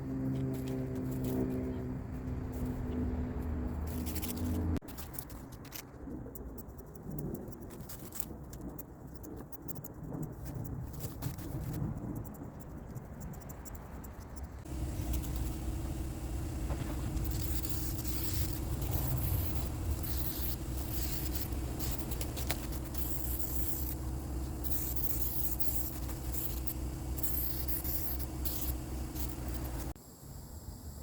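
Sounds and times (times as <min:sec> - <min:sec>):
low hum: 0:00.0 - 0:04.8, 0:14.6 - 0:31.0
aerosol spray hissing: 0:14.7 - 0:30.0.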